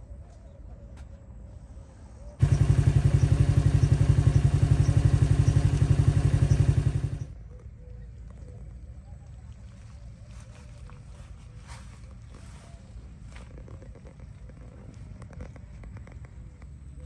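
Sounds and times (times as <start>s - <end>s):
engine running with pulsing beat: 2.4s - 7.4s.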